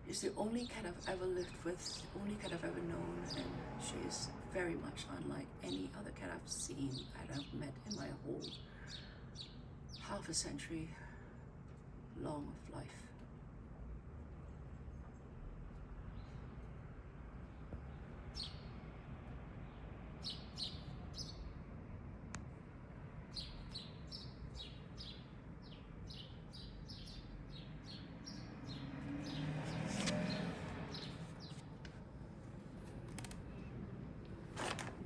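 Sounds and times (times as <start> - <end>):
small birds chirping: 5.0 - 10.2, 17.8 - 18.8, 19.6 - 21.6, 23.2 - 31.7.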